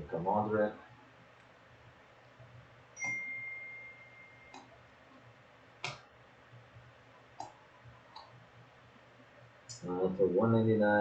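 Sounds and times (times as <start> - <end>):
ringing tone: 3.0 - 4.6.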